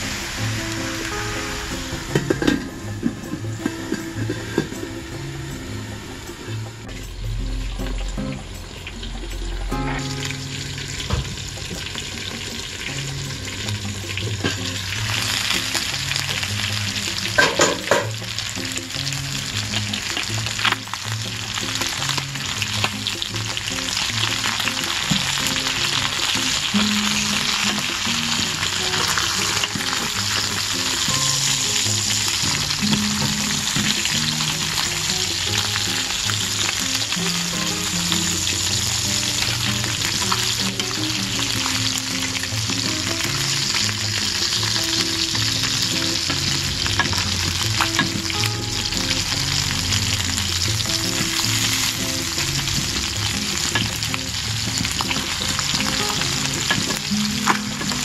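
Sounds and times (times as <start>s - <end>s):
chicken sizzling in a skillet: 0.0s - 58.0s.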